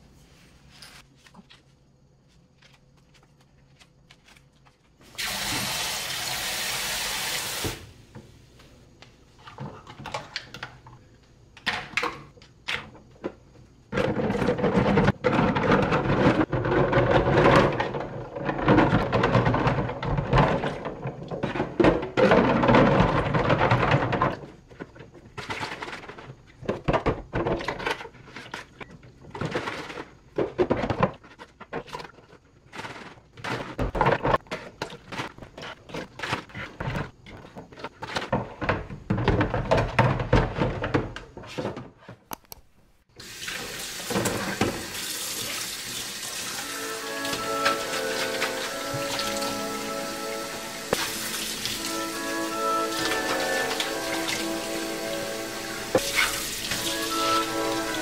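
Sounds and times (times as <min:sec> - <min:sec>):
water splashing in a sink: 0:05.1 - 0:07.8, 0:43.2 - 0:58.0
water running from a tap: 0:05.2 - 0:07.8, 0:43.2 - 0:49.8, 0:50.4 - 0:58.0
objects knocking and clattering: 0:09.0 - 0:42.6, 0:44.0 - 0:45.0, 0:46.6 - 0:58.0.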